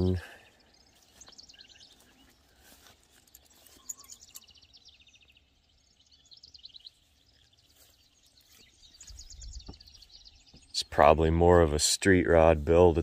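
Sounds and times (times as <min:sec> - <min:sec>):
birds chirping: 0:00.0 - 0:13.0
rapid trills of high chirps: 0:01.6 - 0:05.0.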